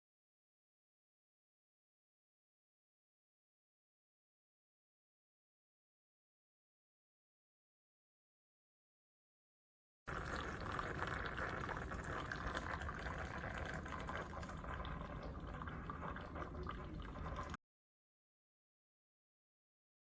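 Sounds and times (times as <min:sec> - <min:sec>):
liquid pouring into container: 0:10.1 - 0:17.6.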